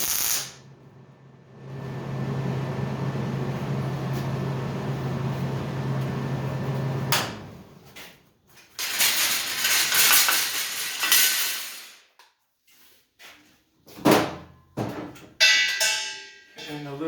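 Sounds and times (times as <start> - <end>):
loud hissing noise: 0.0 - 0.6
machine hum: 0.0 - 7.6.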